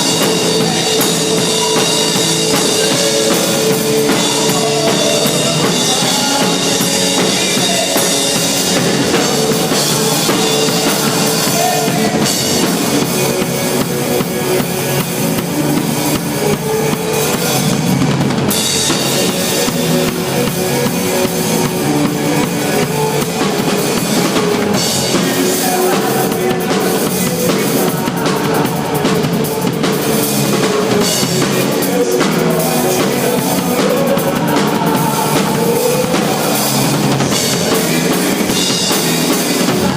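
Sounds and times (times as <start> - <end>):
drum kit beat: 0.0 - 39.9
loud music: 0.0 - 39.9.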